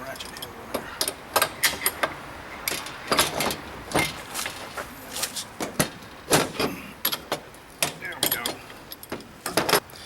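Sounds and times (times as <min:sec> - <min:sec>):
ratchet clinking on metal parts: 0:07.0 - 0:09.8.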